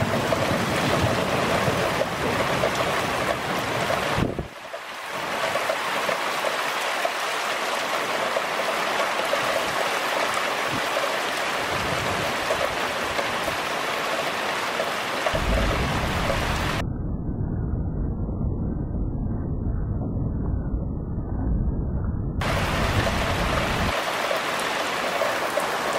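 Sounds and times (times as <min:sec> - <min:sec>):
low rumble of thunder: 0:00.0 - 0:04.6, 0:15.4 - 0:24.0
heavy rain falling: 0:00.0 - 0:16.8, 0:22.4 - 0:25.9.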